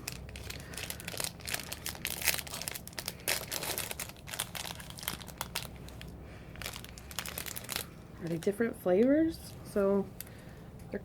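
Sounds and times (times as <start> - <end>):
snack packaging crinkling and tearing: 0.0 - 8.6.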